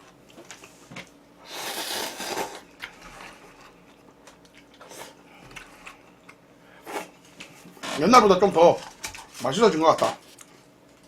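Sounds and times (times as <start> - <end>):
person slurping noodles: 1.4 - 2.6
quiet chewing: 2.8 - 6.4.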